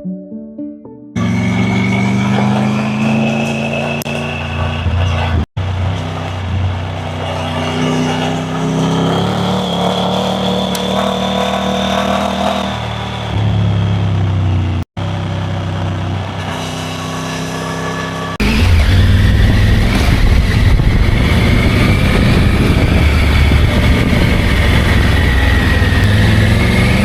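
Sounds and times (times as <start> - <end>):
motorcycle engine running: 1.2 - 27.0.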